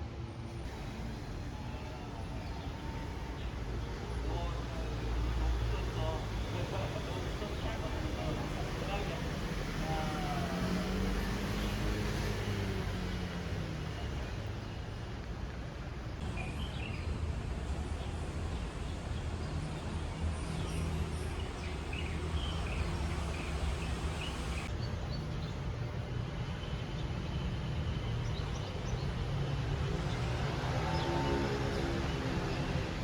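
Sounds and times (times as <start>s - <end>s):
distant traffic rumble: 0.0s - 33.0s
small birds chirping: 19.7s - 25.6s.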